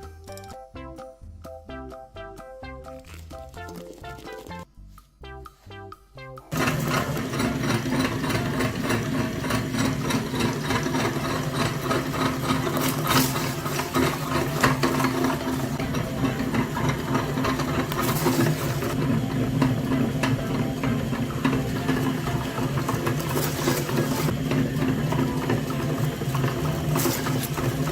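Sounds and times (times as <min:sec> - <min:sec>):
small motor humming and rattling: 0:06.5 - 0:27.9.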